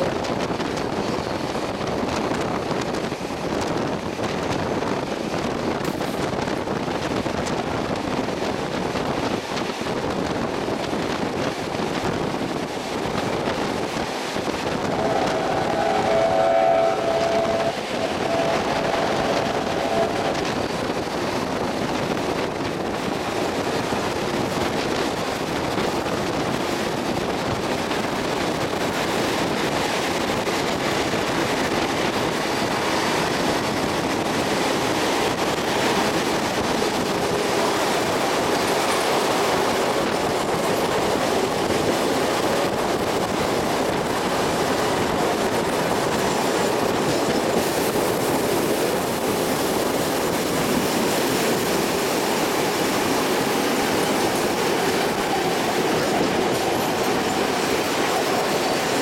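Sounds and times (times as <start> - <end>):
train wheels on rails: 0.0 - 59.0
wind rushing: 0.0 - 59.0
train whistle: 14.8 - 20.6.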